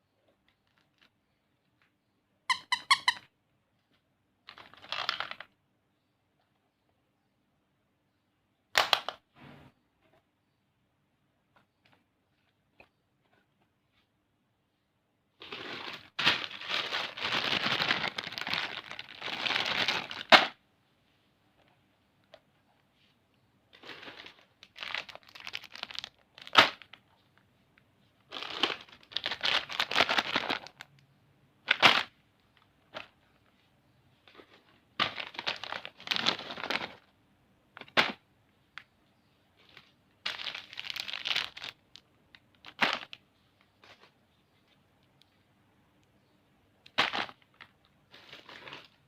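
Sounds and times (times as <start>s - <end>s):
plastic wrappers crinkling: 0.4s - 1.8s, 4.4s - 5.5s, 15.4s - 20.6s, 23.7s - 27.1s, 28.3s - 31.0s, 34.3s - 37.1s, 39.6s - 44.7s, 46.9s - 49.0s
sharp crack: 20.2s - 20.6s, 26.5s - 26.9s.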